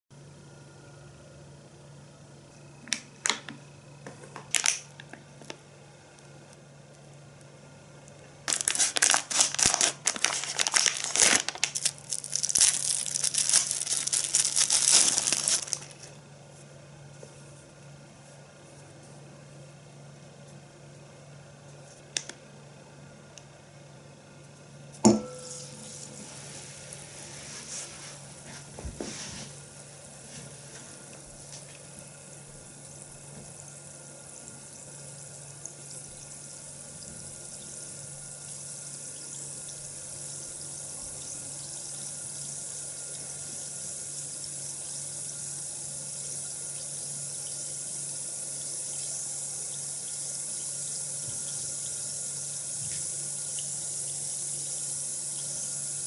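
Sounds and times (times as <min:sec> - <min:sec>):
tap water running into basin: 0:27.7 - 0:56.0.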